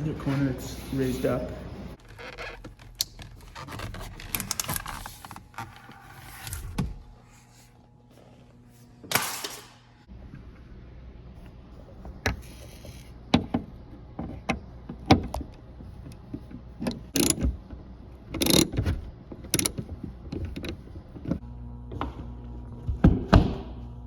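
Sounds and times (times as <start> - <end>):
sharp clicks and knocks: 14.2 - 17.6, 18.3 - 21.4.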